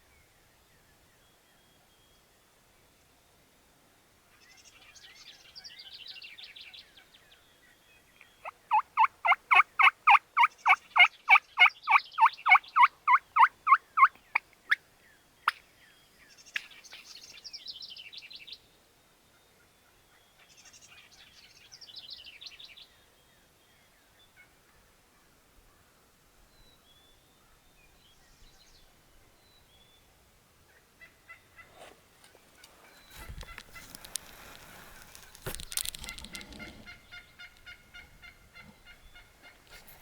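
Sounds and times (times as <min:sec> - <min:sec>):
turkey yelps: 0:08.4 - 0:14.2
distant turkey gobble: 0:08.4 - 0:14.8, 0:36.3 - 0:39.8.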